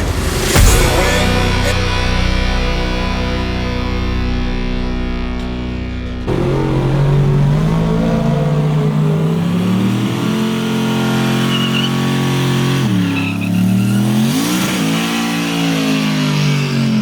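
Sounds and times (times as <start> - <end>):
truck engine revving hard: 6.0 - 17.0.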